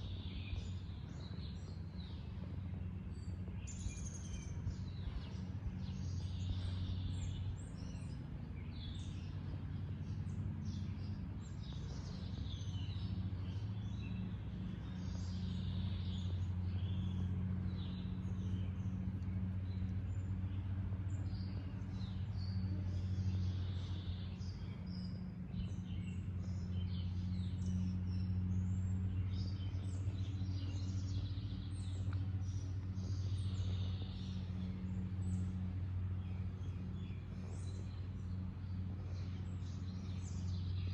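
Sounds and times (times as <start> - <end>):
steady low hum: 0.0 - 40.9
birds chirping and calling: 21.0 - 40.9.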